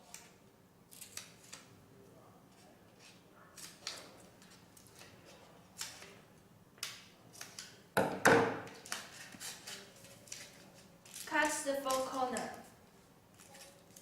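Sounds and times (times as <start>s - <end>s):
paper rustling and light clicks: 2.6s - 6.2s, 8.7s - 14.0s.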